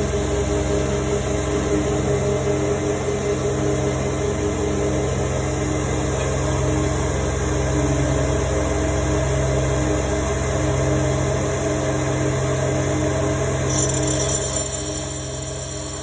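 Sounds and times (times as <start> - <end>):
grinder motor humming: 13.7 - 16.0.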